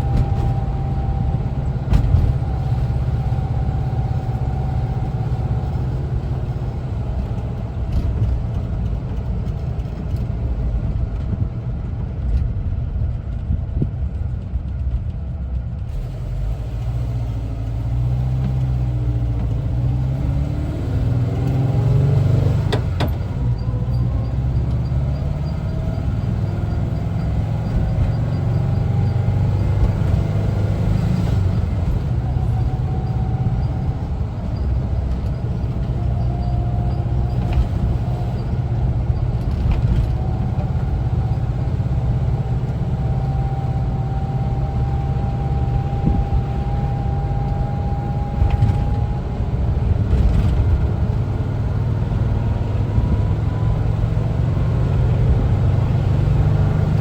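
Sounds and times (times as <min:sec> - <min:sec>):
road noise: 0:00.0 - 0:57.0
van engine rumbling: 0:00.0 - 0:57.0.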